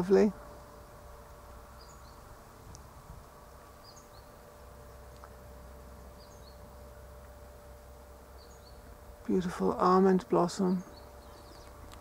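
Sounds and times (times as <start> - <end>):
steady low hum: 0.0 - 12.0
small bird chirping: 1.7 - 2.8, 3.7 - 5.4, 6.0 - 6.8, 8.3 - 9.0, 10.4 - 12.0.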